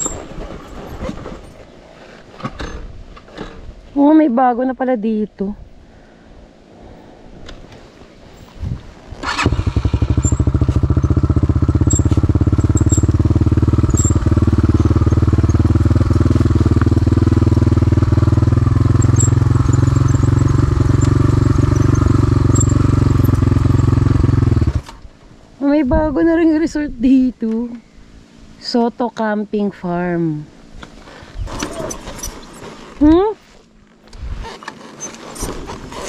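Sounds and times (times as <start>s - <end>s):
dirt bike engine running: 0.0s - 0.9s, 9.2s - 25.0s.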